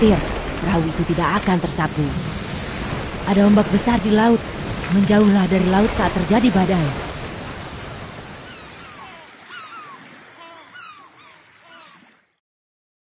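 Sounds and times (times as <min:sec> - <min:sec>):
sea waves: 0:00.0 - 0:12.4
short falling bird chirps: 0:08.4 - 0:12.2.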